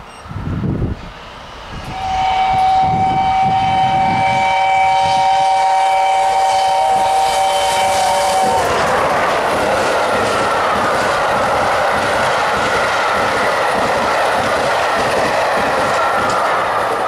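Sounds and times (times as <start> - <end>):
steam locomotive whistle blast: 1.8 - 9.0.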